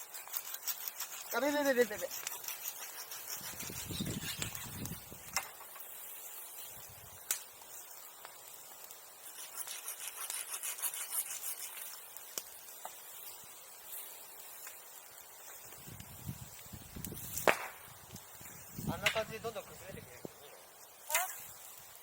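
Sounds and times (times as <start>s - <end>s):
wood scraping and rubbing: 0.0s - 5.8s
sharp wood cracks: 7.1s - 13.1s, 15.4s - 19.4s.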